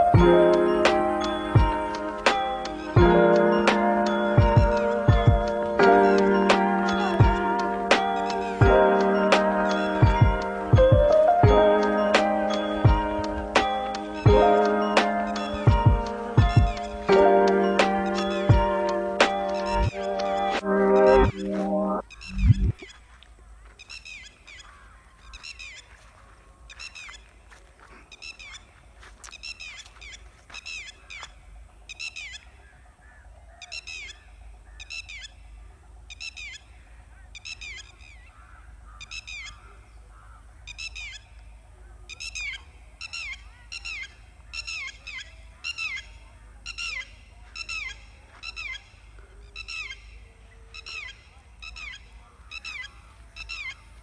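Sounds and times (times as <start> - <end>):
bird calling falling notes: 0.0 - 23.1
low rumble: 20.6 - 22.8.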